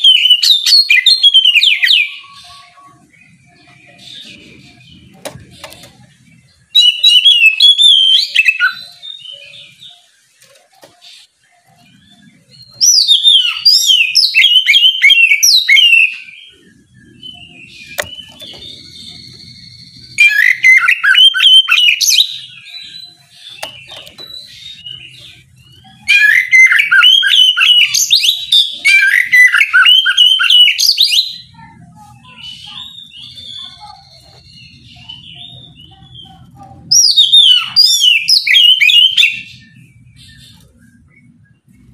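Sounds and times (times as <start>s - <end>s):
bird singing whistled notes: 0.0s - 31.6s, 32.3s - 41.9s.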